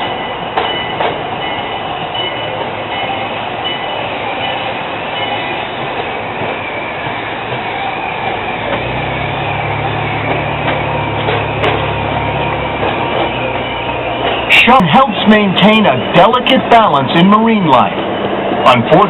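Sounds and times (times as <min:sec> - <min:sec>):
ride train rolling on track: 0:00.0 - 0:19.0.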